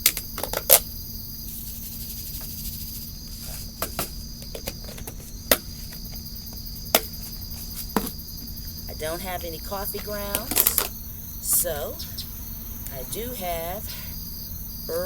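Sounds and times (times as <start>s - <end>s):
eggshells tapping into bucket: 0.0s - 0.9s, 3.7s - 8.6s, 9.8s - 11.0s
crickets trilling: 0.0s - 15.0s.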